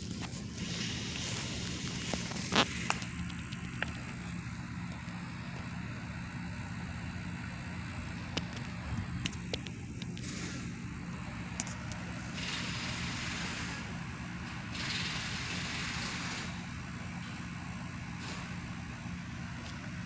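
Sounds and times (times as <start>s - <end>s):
industrial machinery grinding drone: 0.0s - 20.0s
scattered clicks: 1.2s - 5.0s, 8.3s - 10.5s.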